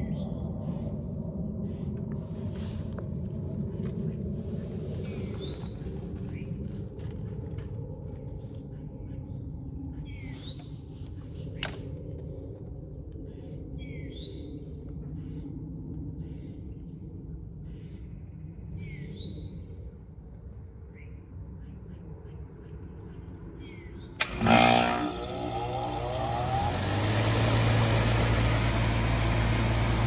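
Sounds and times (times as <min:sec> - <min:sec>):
fan whirring: 0:24.2 - 0:30.0
heat pump humming: 0:24.2 - 0:30.0
valve clack: 0:24.2 - 0:30.0.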